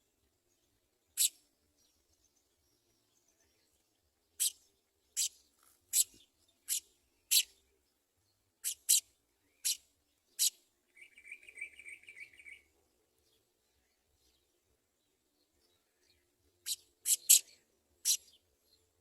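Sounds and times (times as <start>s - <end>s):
sparrow chirping: 0.5s - 19.0s
buzzy bird trill: 1.2s - 1.4s, 8.6s - 9.8s, 16.6s - 18.3s.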